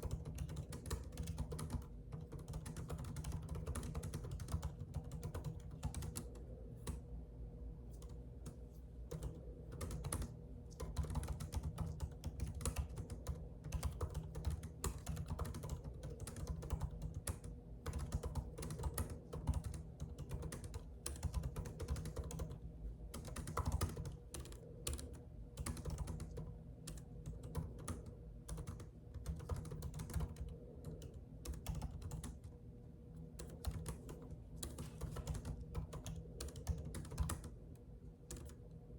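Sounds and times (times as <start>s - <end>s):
typing on computer keyboard: 0.0s - 7.0s, 8.0s - 32.6s, 33.2s - 37.6s, 38.2s - 38.8s
steady low hum: 0.0s - 38.9s.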